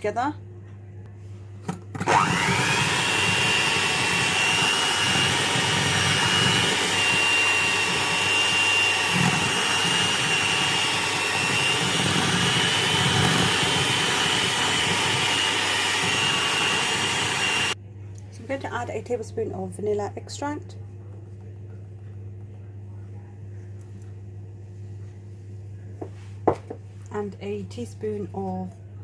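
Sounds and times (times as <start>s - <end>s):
electric mixer whining: 2.0s - 17.8s.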